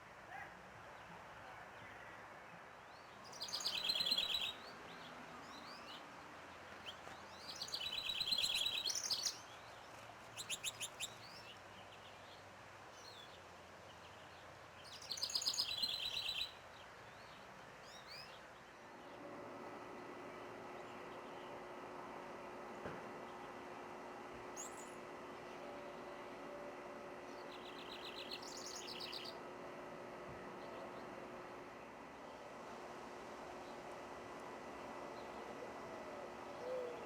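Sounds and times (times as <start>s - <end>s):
songbird singing trilled songs: 2.9s - 6.0s, 6.8s - 9.8s, 10.4s - 12.4s, 14.0s - 18.4s, 27.3s - 29.4s.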